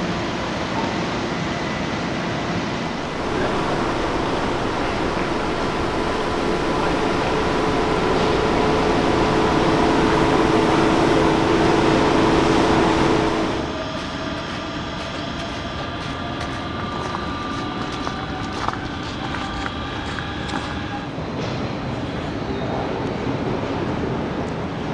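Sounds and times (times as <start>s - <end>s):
electric train humming: 0.0s - 22.1s
faint high whine: 2.8s - 21.1s.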